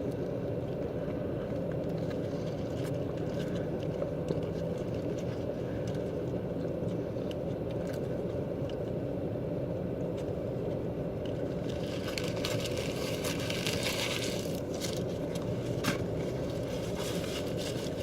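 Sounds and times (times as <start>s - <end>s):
eating clicks and crackling: 0.0s - 9.0s.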